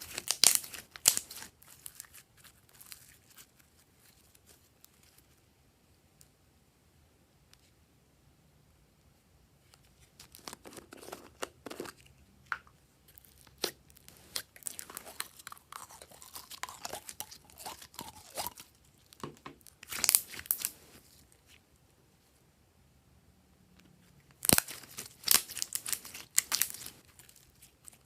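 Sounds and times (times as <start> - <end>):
slime crackling and popping: 0.0 - 3.6, 13.2 - 20.9, 24.3 - 28.0.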